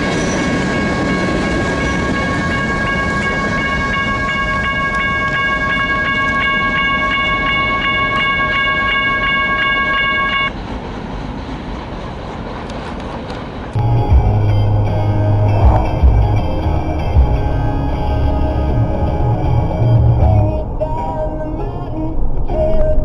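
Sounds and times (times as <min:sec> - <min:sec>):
railroad crossing bell ringing: 0:00.0 - 0:10.6, 0:13.8 - 0:20.4
passing train rumble: 0:00.0 - 0:23.0.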